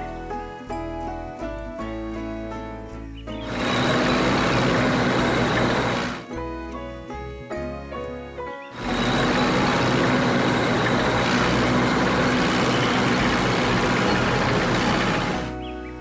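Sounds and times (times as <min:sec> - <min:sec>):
music: 0:00.0 - 0:16.0
heavy vehicle engine running: 0:03.4 - 0:06.6, 0:08.8 - 0:15.7.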